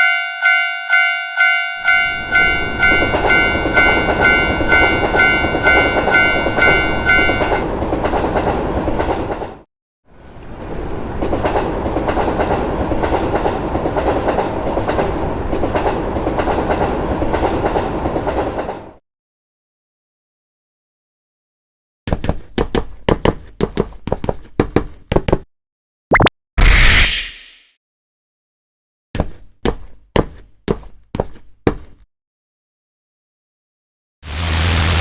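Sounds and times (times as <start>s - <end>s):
level crossing warning bell: 0.0s - 7.7s
train wheels clattering on rails: 2.4s - 9.6s, 11.0s - 19.0s.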